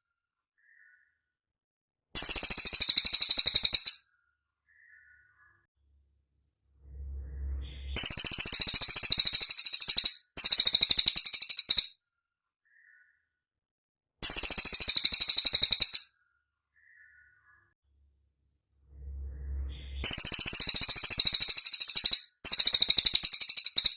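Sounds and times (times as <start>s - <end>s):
faint low rumble: 5.8s - 9.0s, 17.9s - 20.8s.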